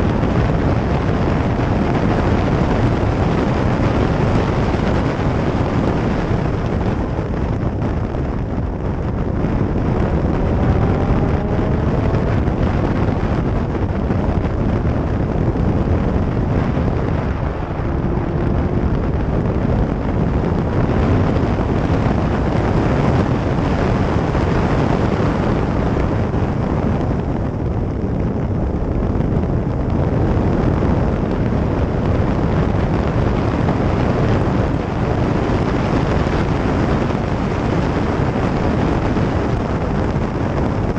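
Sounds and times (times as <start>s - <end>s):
vehicle driving rumble: 0.0s - 40.9s
wind buffeting microphone: 0.0s - 40.9s
faint rising engine note: 9.4s - 14.2s, 14.9s - 20.8s.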